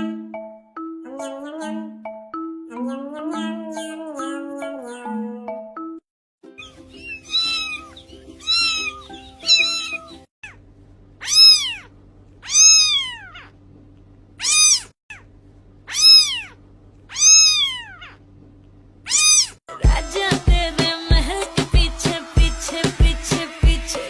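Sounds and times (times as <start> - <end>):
cat meowing: 6.6 - 10.6, 11.2 - 13.6, 14.4 - 15.2, 15.9 - 18.2, 19.1 - 19.6
music with a beat: 19.7 - 24.0.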